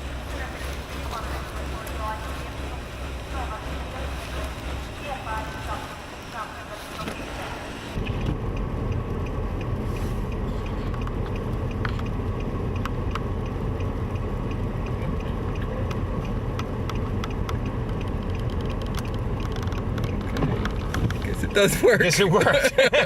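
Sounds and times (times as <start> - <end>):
car engine and road noise: 0.0 - 23.0
faint ticks: 8.5 - 21.2.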